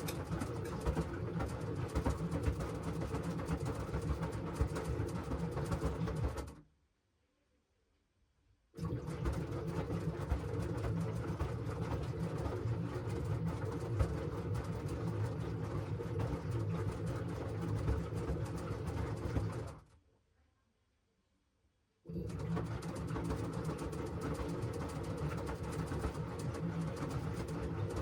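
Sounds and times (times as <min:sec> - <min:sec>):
laundry clattering in drum: 0:00.0 - 0:06.6
washing machine motor hum: 0:00.0 - 0:06.6, 0:08.8 - 0:19.9, 0:22.1 - 0:28.0.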